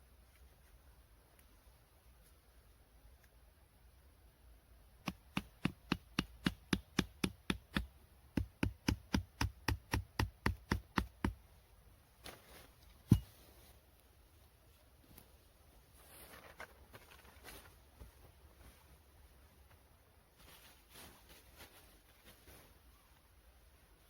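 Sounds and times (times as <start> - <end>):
quick rhythmic knocks: 5.0 - 11.4.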